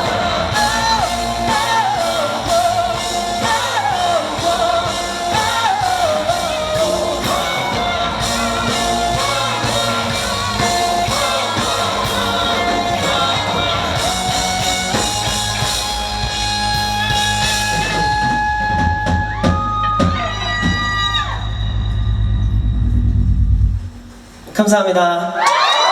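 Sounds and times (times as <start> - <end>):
person singing: 0.0 - 15.2
live rock band playing: 0.0 - 21.8.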